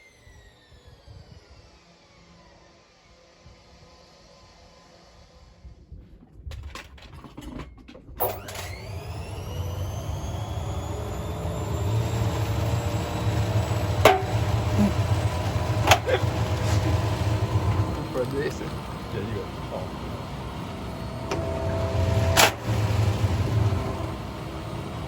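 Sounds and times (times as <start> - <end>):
machine low rumble: 8.2 - 25.0
sharp knocks: 14.0 - 14.8.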